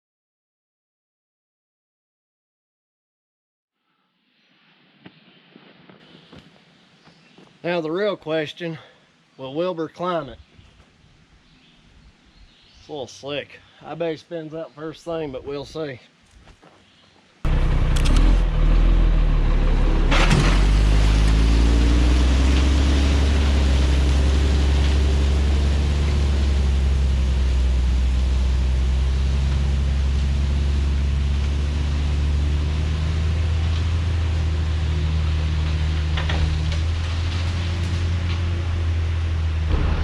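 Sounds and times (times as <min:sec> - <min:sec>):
vehicle engine climbing under load: 0:17.5 - 0:40.0.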